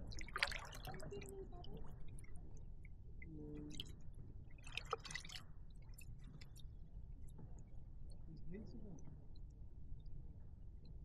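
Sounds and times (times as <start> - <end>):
water lapping and dripping: 0.0 - 6.7.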